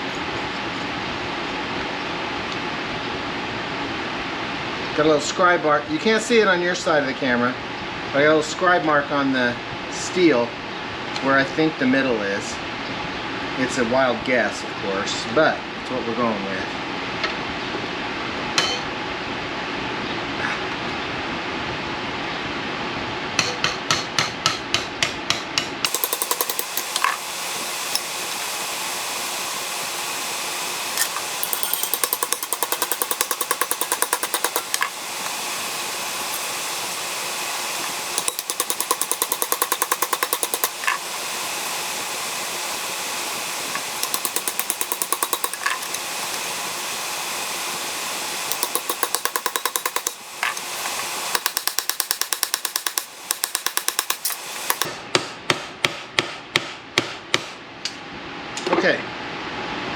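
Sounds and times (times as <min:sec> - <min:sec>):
hammer striking sheet steel: 0:23.4 - 0:28.4, 0:30.9 - 0:42.1, 0:43.6 - 0:47.0, 0:48.5 - 0:57.5.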